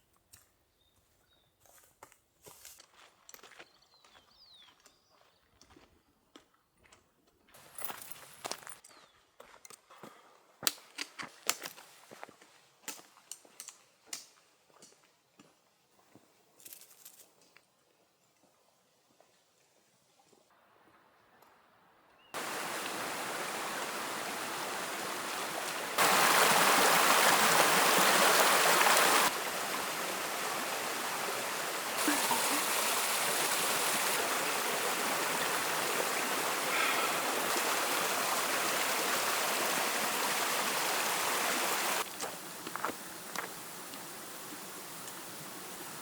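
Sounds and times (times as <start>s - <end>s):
stream water rushing: 22.4s - 46.0s.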